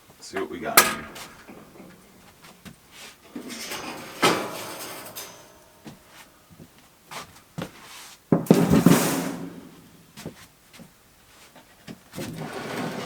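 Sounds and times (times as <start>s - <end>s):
parts being rummaged through: 0.4s - 6.3s.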